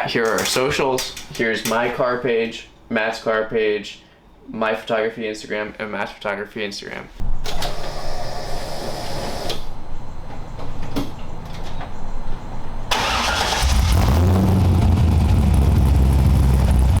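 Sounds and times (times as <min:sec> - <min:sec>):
car engine starting and running: 0:12.9 - 0:17.0.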